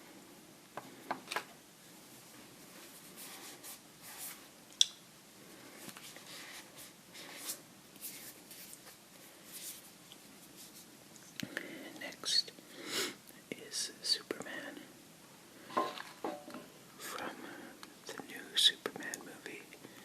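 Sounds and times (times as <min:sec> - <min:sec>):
small objects rustling and scraping: 0:15.7 - 0:16.7.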